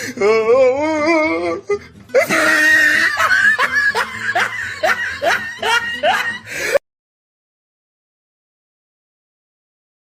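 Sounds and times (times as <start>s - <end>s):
harsh shrieking noise: 2.1s - 3.6s.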